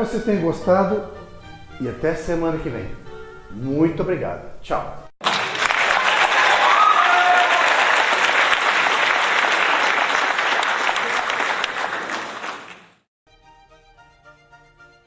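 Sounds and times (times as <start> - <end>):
crowd applauding: 5.2 - 13.1.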